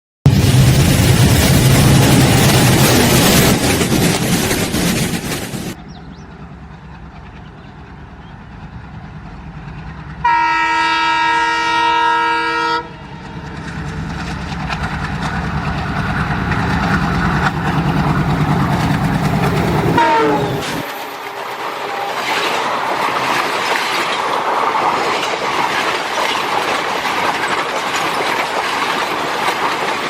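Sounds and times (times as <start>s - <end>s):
wheel clatter over rail joints: 0.3s - 7.8s, 13.1s - 30.0s
train low rumble: 0.3s - 30.0s
train horn chord: 10.2s - 13.1s, 20.0s - 20.8s.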